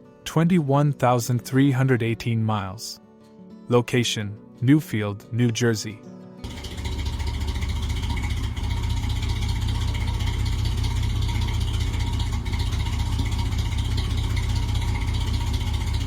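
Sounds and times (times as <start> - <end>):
truck engine idling: 6.4 - 16.0.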